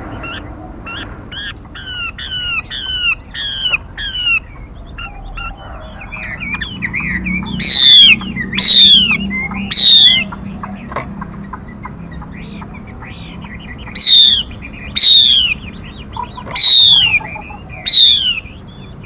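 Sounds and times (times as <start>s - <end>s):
harsh bird calls: 0.0s - 19.0s
songbird chirping: 0.0s - 19.0s.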